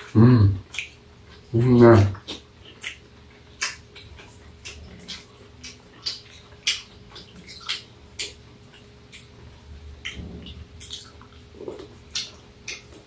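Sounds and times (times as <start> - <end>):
person chewing corn cob: 0.0 - 13.0.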